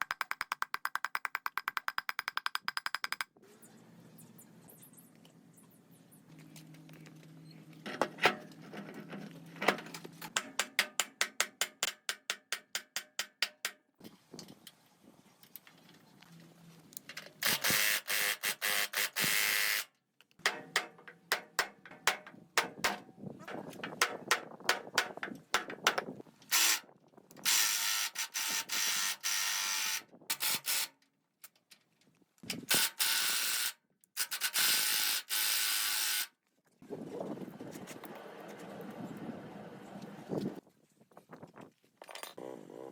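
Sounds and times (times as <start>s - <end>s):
metallic clicking and ratcheting: 0.0s - 3.4s.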